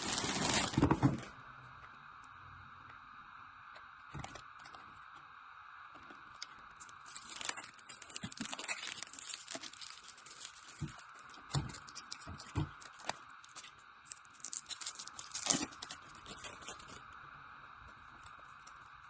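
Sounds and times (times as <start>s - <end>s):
plastic wrap crinkling and tearing: 0.0s - 1.3s, 6.1s - 17.1s.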